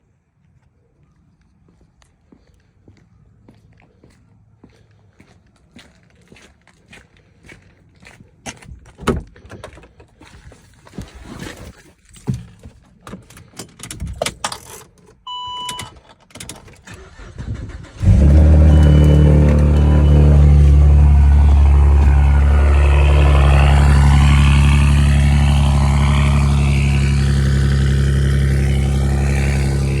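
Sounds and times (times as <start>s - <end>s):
car engine starting and idling: 16.4s - 30.0s
short electronic beep: 18.6s - 23.1s.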